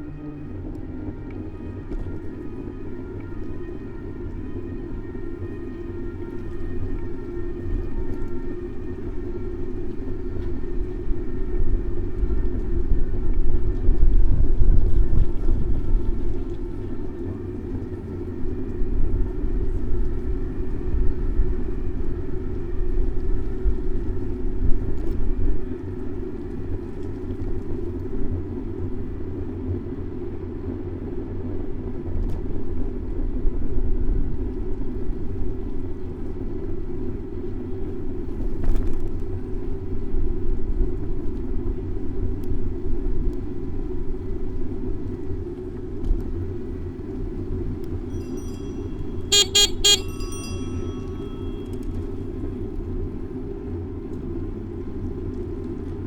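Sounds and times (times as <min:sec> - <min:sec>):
wind rumbling over microphone: 0:00.8 - 0:28.5
city traffic noise: 0:48.3 - 0:52.4.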